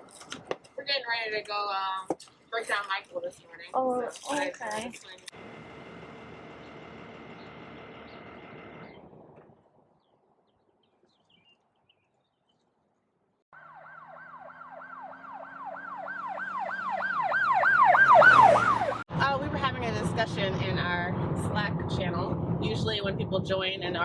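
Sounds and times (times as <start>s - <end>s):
siren yelping: 13.5s - 19.1s.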